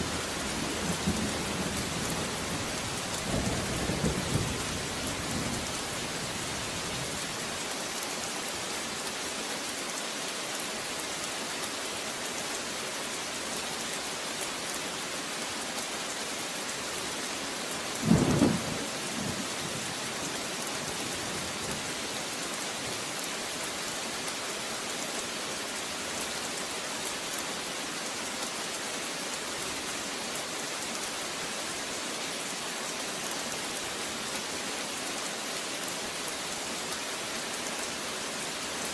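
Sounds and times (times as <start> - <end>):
steady rain hiss: 0.0 - 38.9
loud thunderclap: 18.1 - 18.8.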